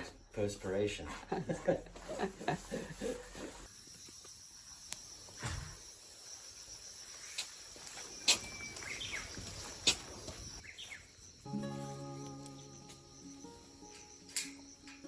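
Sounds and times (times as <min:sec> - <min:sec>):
insect chirring: 0:03.6 - 0:15.0.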